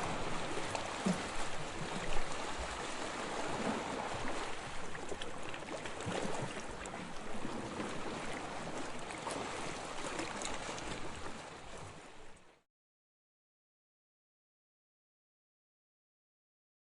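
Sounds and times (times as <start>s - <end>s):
waves washing: 0.0s - 12.4s.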